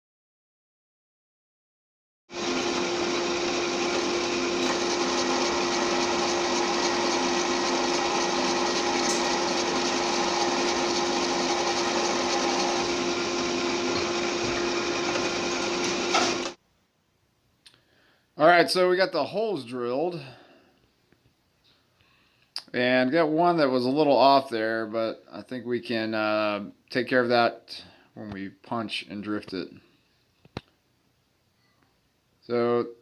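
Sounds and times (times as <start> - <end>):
electric drill boring into steel: 2.3 - 16.6.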